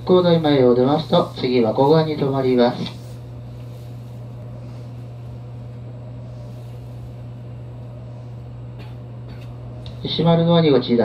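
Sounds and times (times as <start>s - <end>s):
electric train hum: 0.0s - 11.0s.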